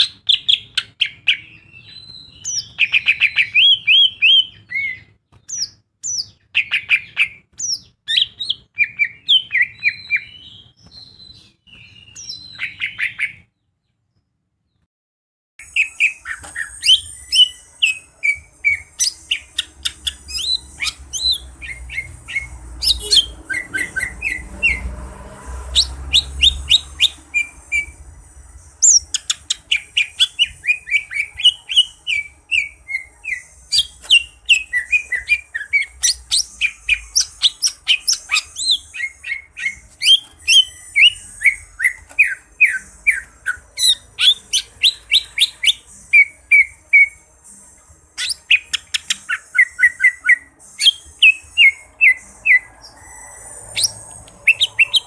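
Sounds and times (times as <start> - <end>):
bird singing rapid chirps and whistles: 0.0 - 13.5, 15.6 - 47.2, 48.2 - 55.0.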